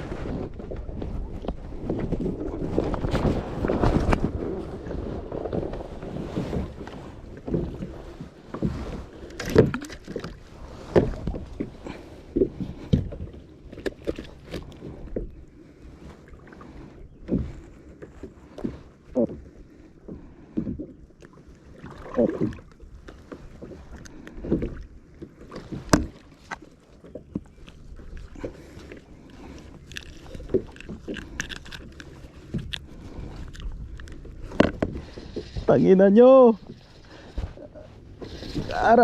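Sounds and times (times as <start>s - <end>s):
wind on microphone: 0.0s - 13.4s, 29.4s - 39.0s
water noise around boat: 0.0s - 39.0s.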